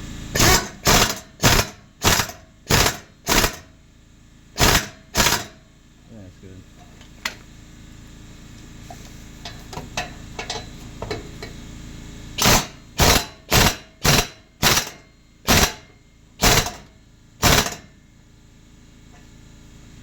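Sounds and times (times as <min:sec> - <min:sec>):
impact wrench bursts: 0:00.3 - 0:03.8, 0:04.6 - 0:05.6, 0:12.4 - 0:18.0.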